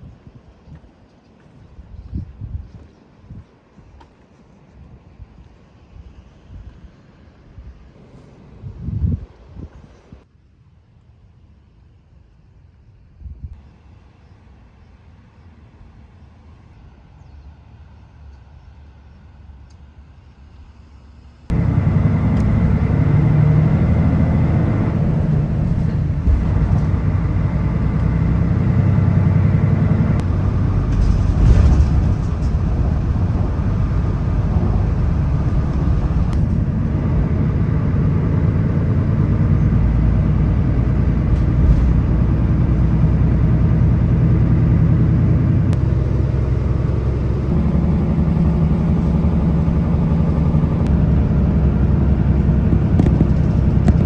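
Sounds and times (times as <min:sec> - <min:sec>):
road noise: 0:00.0 - 0:10.3, 0:13.5 - 0:54.0
low engine hum: 0:12.8 - 0:54.0.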